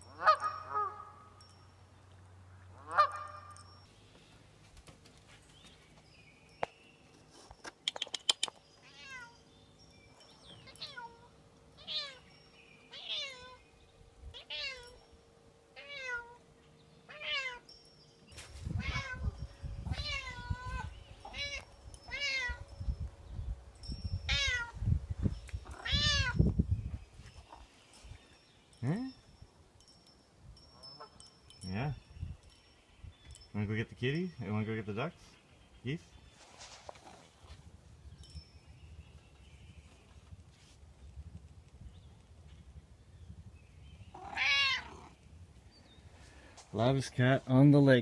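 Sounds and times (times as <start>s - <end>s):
cat meowing: 8.8s - 9.4s, 10.7s - 12.2s, 12.9s - 13.6s, 14.3s - 15.0s, 15.8s - 16.4s, 17.1s - 17.6s, 18.8s - 19.3s, 19.9s - 22.6s, 24.3s - 24.8s, 25.7s - 26.4s, 44.2s - 45.2s.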